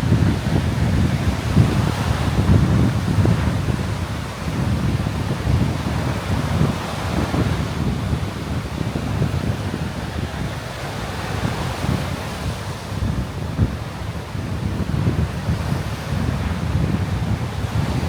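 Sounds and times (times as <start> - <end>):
wind buffeting microphone: 0.0 - 18.0
surf breaking on beach: 15.3 - 18.0.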